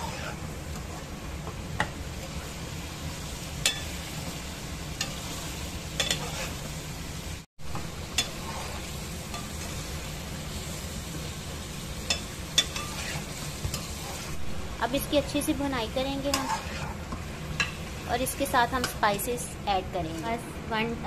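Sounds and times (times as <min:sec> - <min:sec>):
metal spoon scraping a pot: 0:00.0 - 0:00.4, 0:06.0 - 0:06.6, 0:12.6 - 0:14.3, 0:16.3 - 0:17.0
chicken sizzling in hot oil: 0:00.0 - 0:19.5.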